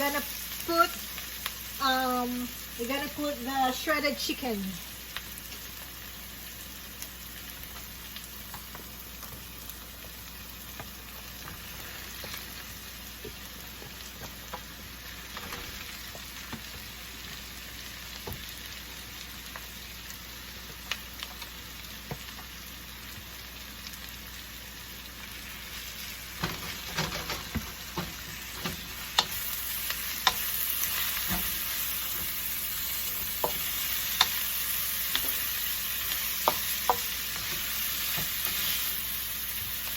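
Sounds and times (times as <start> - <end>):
food sizzling in oil: 0.0 - 39.9
spatula knocking against pan: 36.4 - 37.1.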